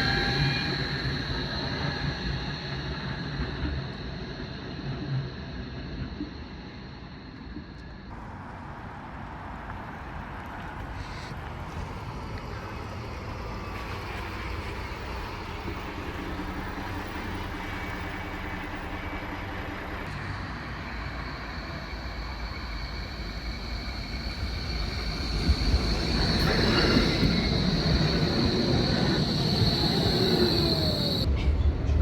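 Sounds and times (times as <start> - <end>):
tram rumbling: 0.0 - 32.0
high steady whine: 15.6 - 31.3.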